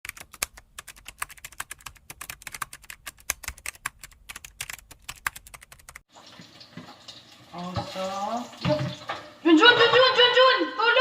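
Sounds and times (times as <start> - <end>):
typing on a keyboard: 0.0 - 6.0.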